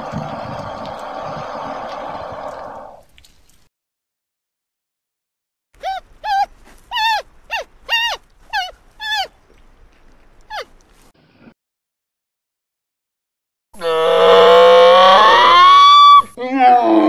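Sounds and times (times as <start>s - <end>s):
animal high-pitched cries: 5.8s - 9.4s, 13.8s - 17.0s.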